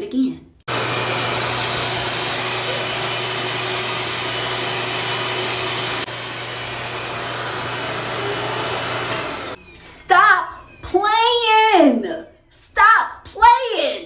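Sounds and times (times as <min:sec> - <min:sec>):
hair dryer rushing air: 0:00.7 - 0:09.6.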